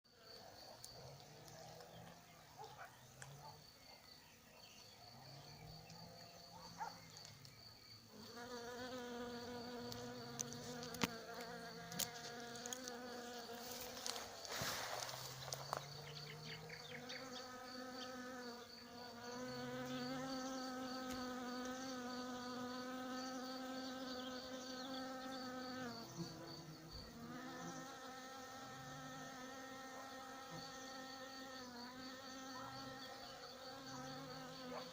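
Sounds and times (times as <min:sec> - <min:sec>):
insect chirping: 0:00.1 - 0:34.9
bees buzzing: 0:08.1 - 0:34.9.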